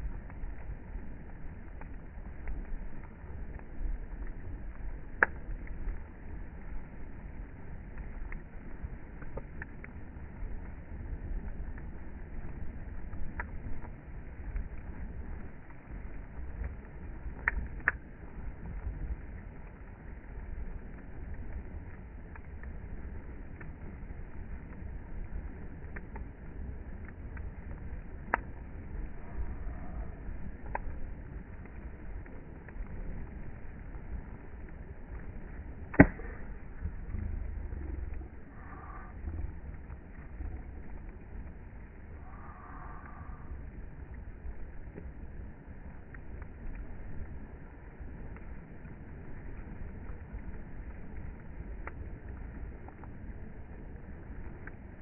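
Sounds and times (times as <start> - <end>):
bonfire burning rumble: 0.0 - 55.0
fire crackling pops: 0.0 - 55.0
faint click: 29.2 - 31.0.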